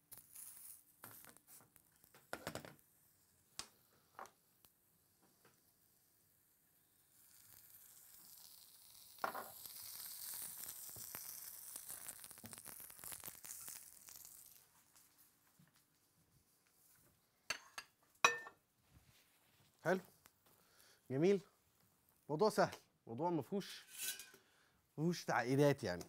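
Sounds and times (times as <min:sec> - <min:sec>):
food sizzling in oil: 0:06.8 - 0:14.9.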